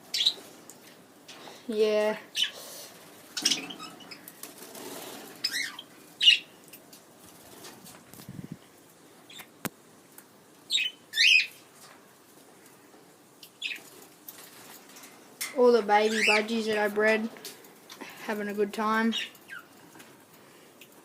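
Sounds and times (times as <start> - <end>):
budgerigars chirping: 5.4 - 6.5, 10.7 - 11.5.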